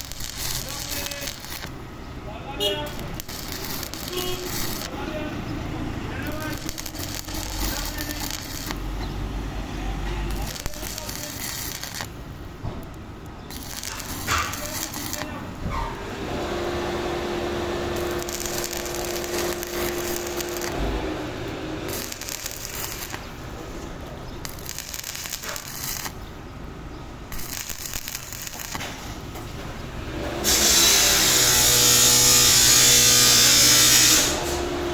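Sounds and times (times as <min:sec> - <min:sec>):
crackling hiss: 0:00.0 - 0:34.8
loud steady hiss: 0:00.0 - 0:34.9
steady machine hum: 0:10.4 - 0:28.7.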